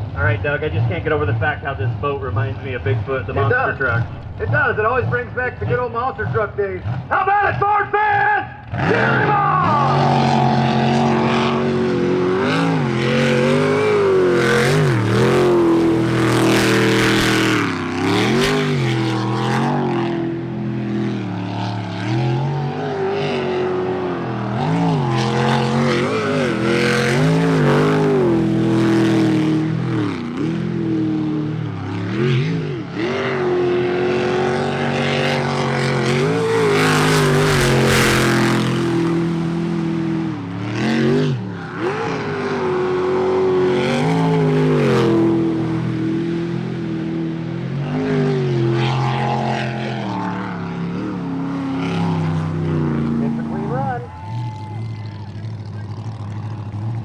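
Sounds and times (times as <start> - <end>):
boat engine revving: 8.7 - 57.0.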